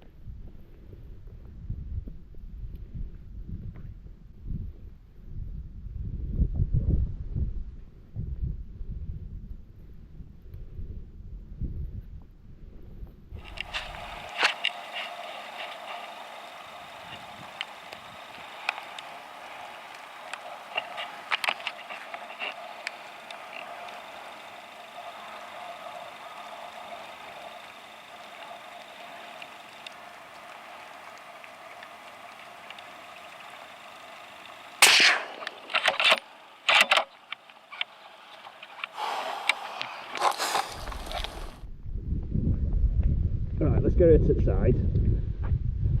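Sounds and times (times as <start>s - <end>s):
raindrops tapping near microphone: 13.4s - 34.8s
rain hiss: 13.4s - 41.6s
rifle shot: 34.8s - 37.0s.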